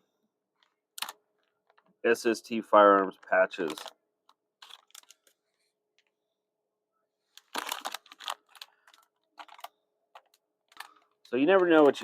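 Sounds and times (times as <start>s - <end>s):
packaging crinkling: 1.0s - 1.9s, 3.6s - 3.9s, 4.6s - 5.4s, 7.4s - 12.0s.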